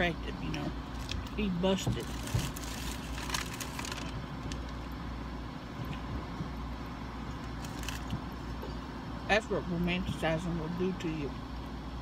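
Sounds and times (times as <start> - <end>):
low rumble inside a car: 0.0 - 12.0
wrapper crackling: 0.8 - 4.9, 7.5 - 8.1.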